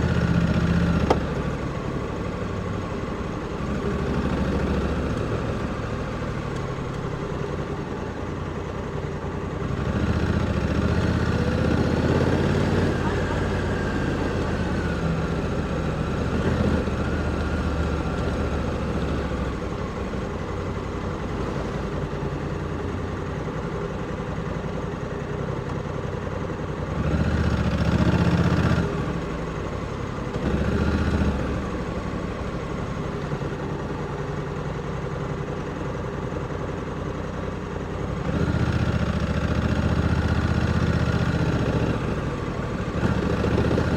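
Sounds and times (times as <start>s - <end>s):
motorcycle engine with throttle bursts: 9.5s - 22.4s, 26.8s - 35.6s, 38.0s - 43.9s.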